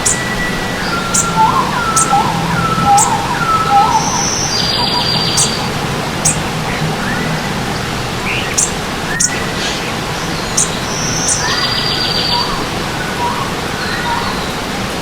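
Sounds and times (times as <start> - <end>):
bird whistled notes: 0.0 - 7.3, 10.4 - 12.6
buzzy bird trill: 0.0 - 14.5
birds chirping: 0.0 - 15.0
stream water running: 0.0 - 15.0.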